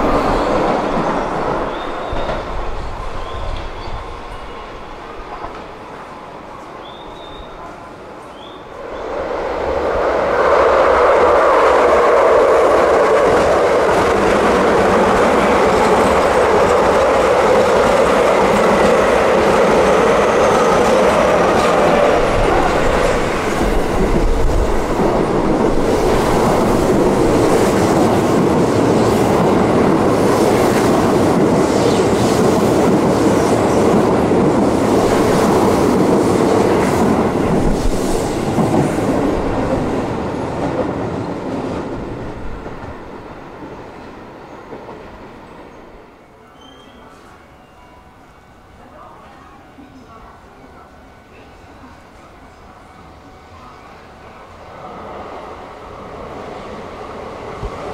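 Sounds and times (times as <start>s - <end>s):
clickety-clack over rail joints: 0.0s - 3.9s, 5.3s - 5.8s
train wheels rushing on rail: 0.0s - 57.9s.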